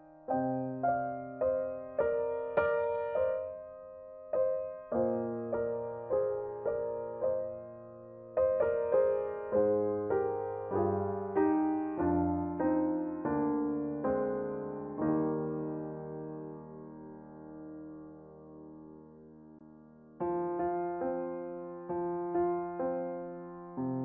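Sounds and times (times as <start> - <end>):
gentle piano music: 0.0 - 24.0.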